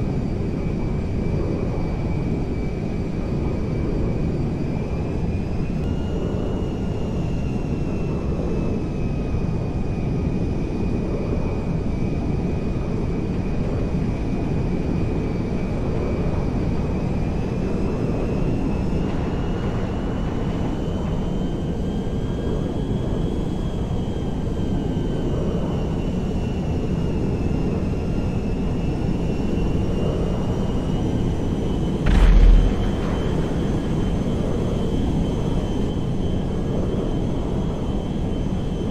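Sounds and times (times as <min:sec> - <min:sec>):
faint high engine whine: 0:00.0 - 0:11.7, 0:31.8 - 0:38.0
airplane engines rumbling: 0:28.6 - 0:38.9
loud bump: 0:32.1 - 0:34.6.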